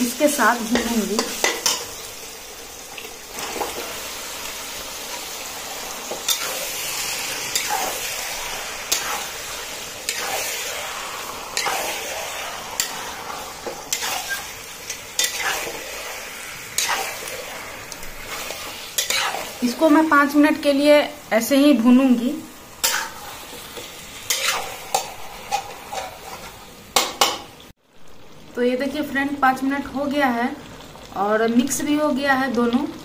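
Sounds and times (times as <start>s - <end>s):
chicken sizzling in oil: 0.0s - 33.0s
metal spatula scraping pan: 6.1s - 6.8s, 8.9s - 11.0s, 11.6s - 17.6s, 18.2s - 19.8s, 22.8s - 27.4s.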